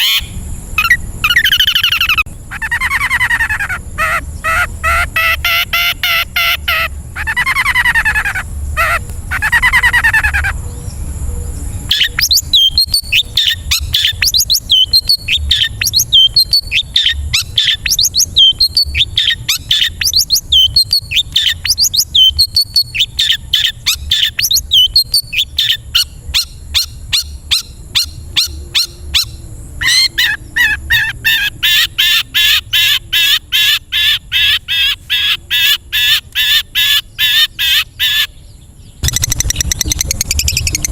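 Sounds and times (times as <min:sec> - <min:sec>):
shrike singing: 0:00.0 - 0:40.9.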